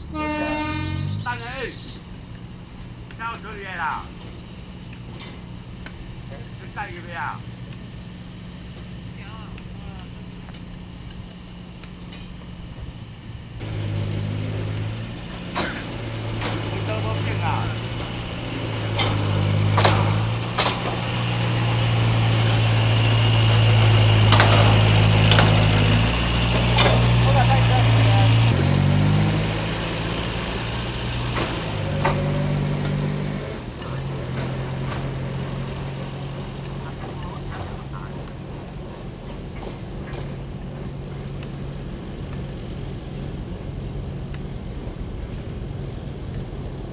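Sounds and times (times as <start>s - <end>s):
maintenance car engine running: 0.0s - 46.9s
sharp knocks: 18.8s - 21.2s, 24.2s - 25.8s.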